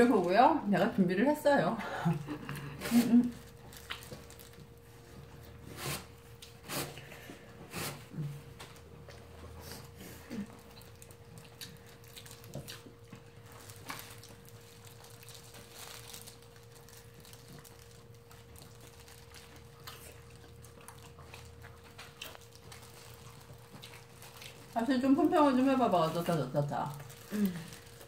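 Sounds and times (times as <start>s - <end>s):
faint steady hum: 0.0s - 28.0s
quiet chewing clicks and smacks: 3.6s - 5.3s, 8.6s - 15.4s, 16.5s - 24.8s.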